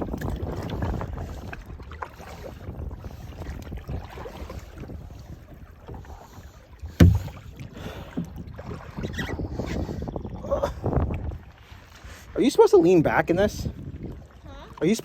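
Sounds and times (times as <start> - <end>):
water sloshing: 0.0 - 9.4
wind buffeting microphone: 0.0 - 11.9, 13.2 - 14.8
kayak paddling: 0.0 - 12.4, 13.8 - 15.0
sharp knock: 6.9 - 7.4.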